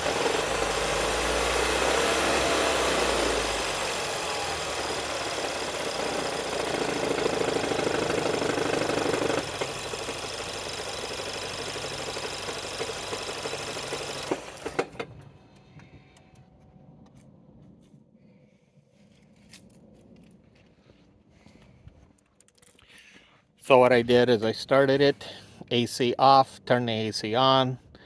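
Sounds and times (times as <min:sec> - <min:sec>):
car engine running: 0:00.0 - 0:15.2.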